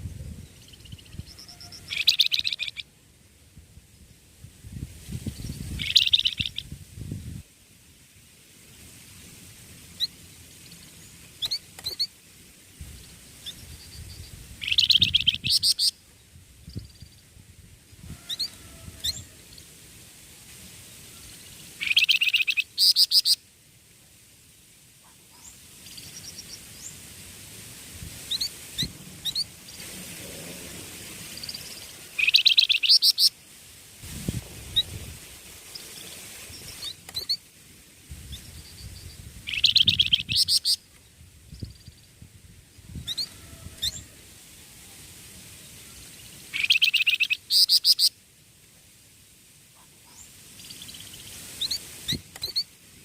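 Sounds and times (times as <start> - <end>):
thin bird chirps: 0.4 - 2.8, 5.4 - 6.7, 10.0 - 12.1, 13.0 - 15.9, 21.8 - 23.4, 31.4 - 33.3, 35.7 - 37.4, 38.3 - 42.1, 46.5 - 48.1, 50.0 - 52.7
songbird trilling: 0.6 - 2.8, 5.8 - 6.7, 13.4 - 15.9, 21.8 - 23.4, 31.4 - 33.3, 38.3 - 40.8, 46.5 - 48.1, 50.1 - 52.7.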